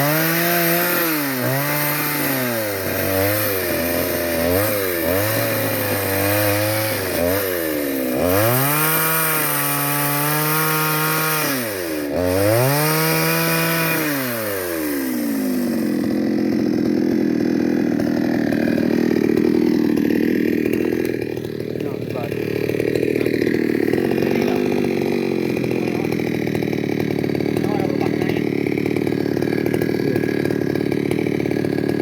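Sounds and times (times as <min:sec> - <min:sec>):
chainsaw engine revving: 0:00.0 - 0:32.0.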